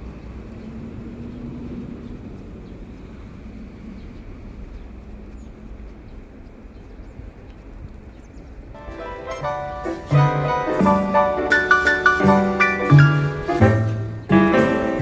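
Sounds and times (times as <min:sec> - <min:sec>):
vehicle running rumble: 0:08.9 - 0:15.0.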